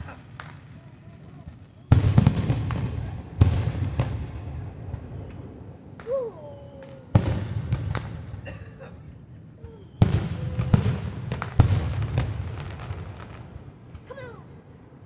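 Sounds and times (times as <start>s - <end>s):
small fireworks pops: 0.0s - 8.2s
fireworks booming: 0.0s - 15.0s.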